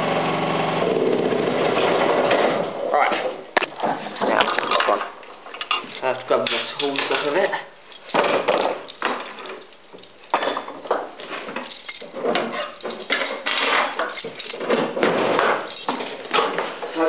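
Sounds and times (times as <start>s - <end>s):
metal tools clanking and rattling: 3.6s - 17.0s.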